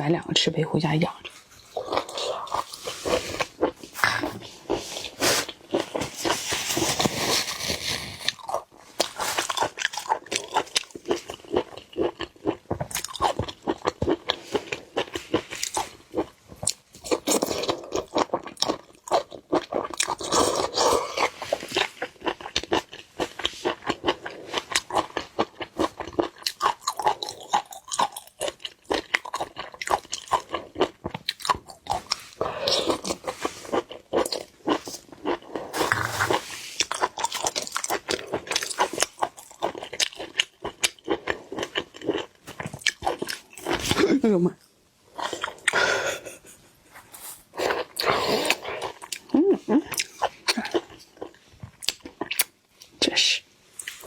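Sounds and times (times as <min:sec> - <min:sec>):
wet crunching and chewing: 0:01.2 - 0:44.2, 0:47.6 - 0:52.9.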